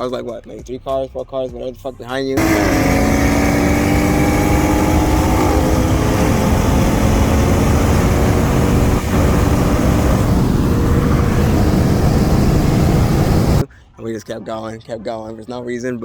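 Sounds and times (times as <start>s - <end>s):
car engine accelerating: 2.4s - 13.6s
road noise: 2.4s - 13.6s.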